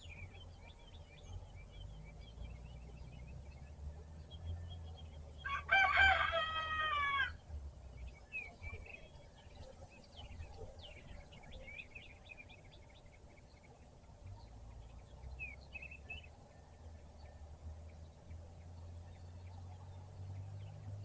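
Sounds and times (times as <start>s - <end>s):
small birds chirping: 0.0s - 21.0s
rooster crowing: 5.4s - 7.4s.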